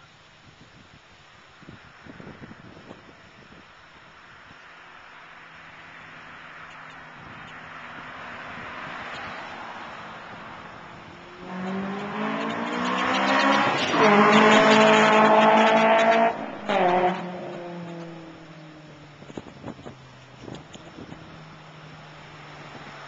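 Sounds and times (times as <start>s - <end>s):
car exhaust accelerating: 6.7s - 23.0s.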